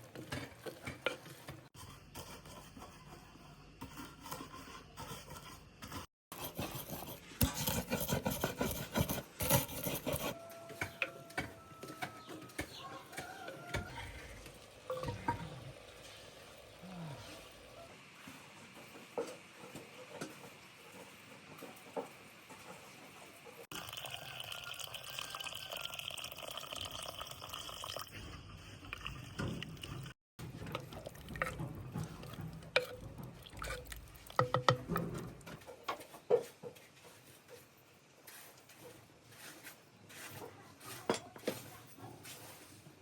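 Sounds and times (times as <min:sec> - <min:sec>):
water running in a stream: 0:23.7 - 0:28.1.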